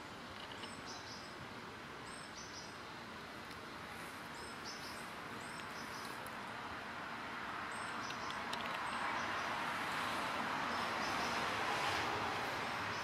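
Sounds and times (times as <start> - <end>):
birds chirping: 0.0 - 1.4, 2.0 - 3.0, 4.0 - 6.5, 7.6 - 9.6, 10.6 - 11.5
outdoor hiss: 0.0 - 13.0.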